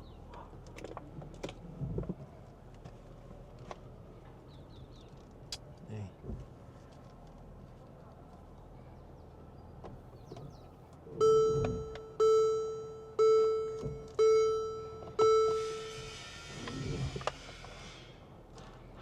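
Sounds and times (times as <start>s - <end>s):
car warning chime: 11.2s - 16.1s.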